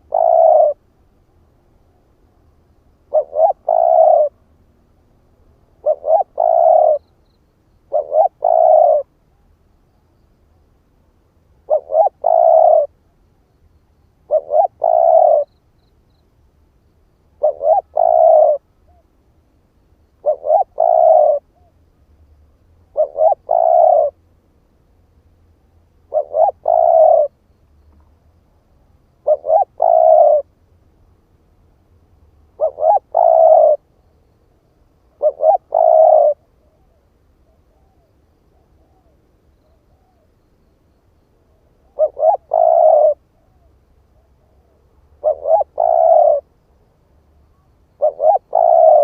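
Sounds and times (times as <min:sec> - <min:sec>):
dove cooing: 0:00.0 - 0:00.8, 0:03.0 - 0:04.4, 0:05.8 - 0:07.1, 0:07.9 - 0:09.1, 0:11.6 - 0:13.0, 0:14.2 - 0:15.5, 0:17.4 - 0:19.0, 0:20.2 - 0:21.7, 0:22.9 - 0:24.2, 0:26.1 - 0:27.4, 0:29.2 - 0:30.5, 0:32.6 - 0:33.9, 0:35.1 - 0:40.3, 0:41.8 - 0:46.5, 0:47.5 - 0:49.0.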